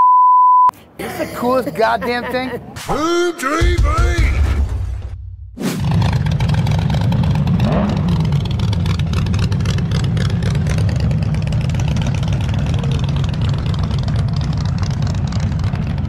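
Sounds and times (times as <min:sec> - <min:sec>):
car engine revving: 0:05.6 - 0:16.0
low exhaust rumble: 0:06.3 - 0:16.0.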